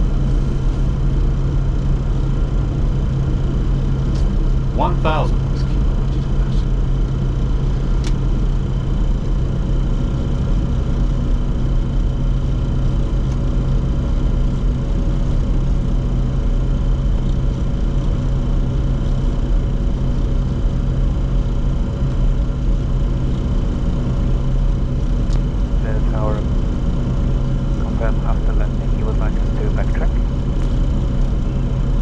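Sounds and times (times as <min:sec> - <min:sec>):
steady hums: 0:04.8 - 0:05.5
airflow and engine rumble: 0:22.7 - 0:32.0.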